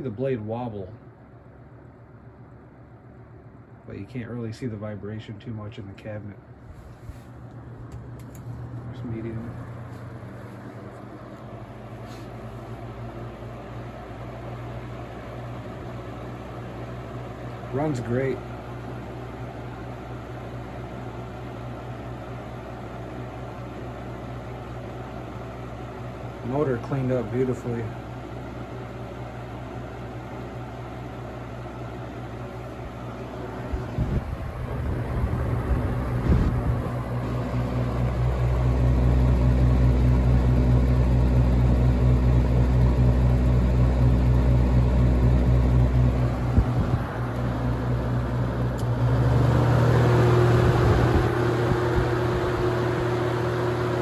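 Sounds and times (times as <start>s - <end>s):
box fan running: 0.0s - 54.0s
fan switch clicks: 7.8s - 8.6s, 46.5s - 47.5s.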